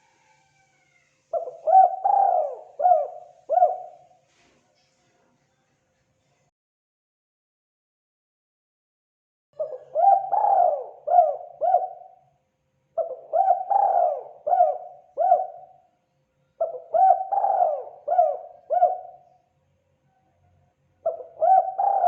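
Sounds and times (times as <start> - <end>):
dove cooing: 0.0 - 4.2, 9.6 - 12.2, 13.0 - 15.8, 16.6 - 19.4, 21.0 - 22.0.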